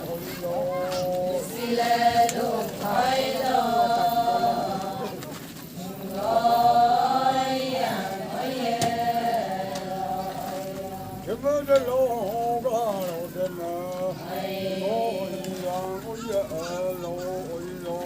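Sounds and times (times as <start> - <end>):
lead singer singing verses: 0.0 - 18.0
group singing chant in unison: 1.1 - 11.3, 13.9 - 16.0.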